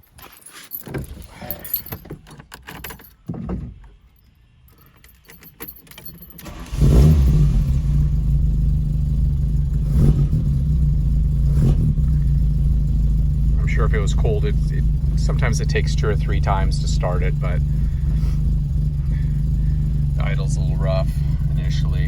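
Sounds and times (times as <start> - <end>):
keys rattling: 0.0 - 6.8
car engine starting and idling: 5.9 - 22.0.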